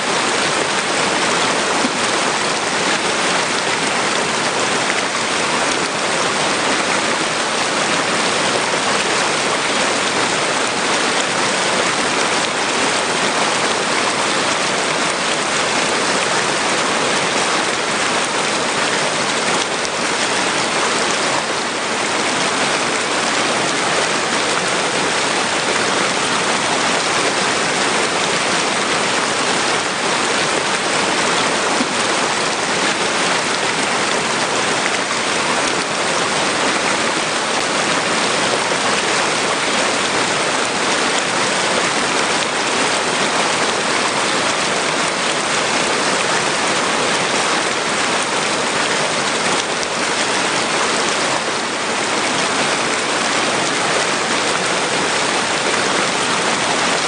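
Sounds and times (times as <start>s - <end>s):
water rushing against rocks: 0.0s - 57.0s.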